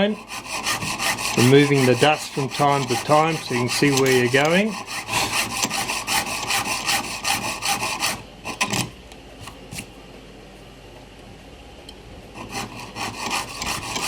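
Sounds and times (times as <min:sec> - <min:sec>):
fine saw cutting brass plate: 0:00.0 - 0:08.9, 0:12.4 - 0:14.0.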